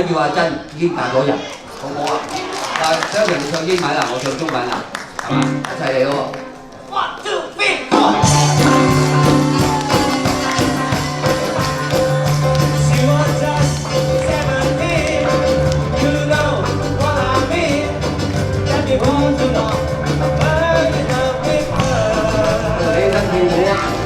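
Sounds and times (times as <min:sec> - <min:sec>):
live band playing pop song: 0:07.9 - 0:24.0
person singing lead vocal: 0:07.9 - 0:24.0.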